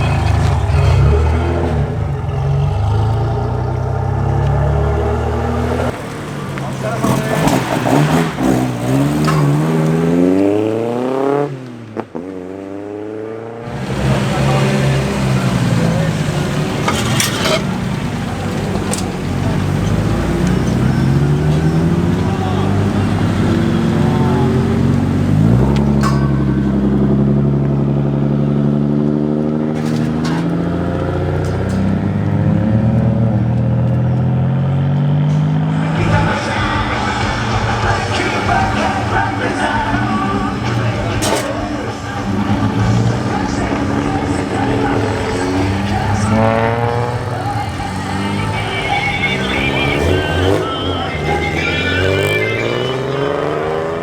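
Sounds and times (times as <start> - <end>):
car engine accelerating hard: 0.0 - 54.0
sharp crack at gear change: 5.8 - 10.6, 13.7 - 27.8, 29.4 - 34.3, 35.3 - 53.3.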